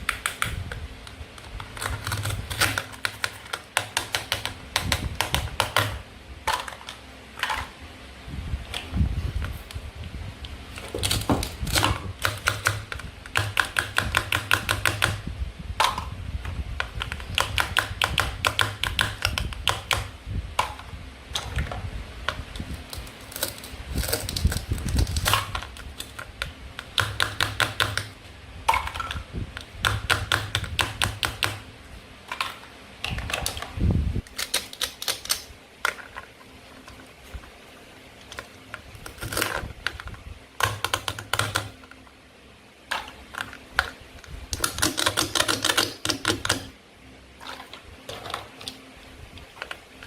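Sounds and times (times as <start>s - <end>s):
toy knife cutting toy food: 44.6s - 46.7s.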